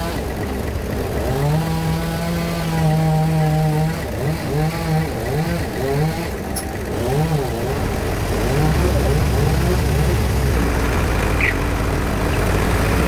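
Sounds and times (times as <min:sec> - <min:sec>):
bandsaw machinery running: 0:00.0 - 0:13.0.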